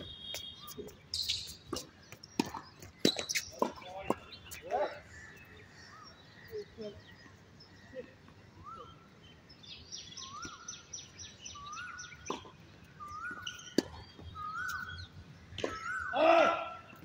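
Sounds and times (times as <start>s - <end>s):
high bird chirps: 0.0s - 6.7s, 9.7s - 16.2s
tennis balls being struck: 1.7s - 4.3s
bird whistling: 13.0s - 15.1s.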